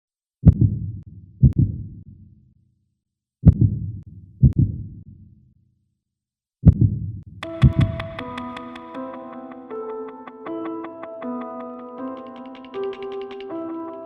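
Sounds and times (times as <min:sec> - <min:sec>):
heartbeat thumps: 0:00.4 - 0:01.9, 0:03.4 - 0:04.9, 0:06.6 - 0:08.4.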